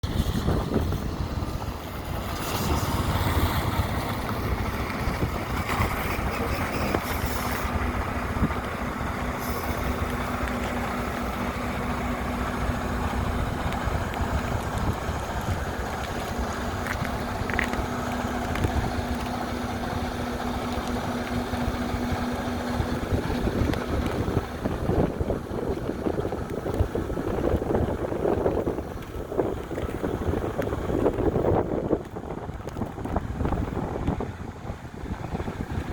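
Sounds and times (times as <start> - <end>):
diesel truck engine idling: 0.0 - 35.9.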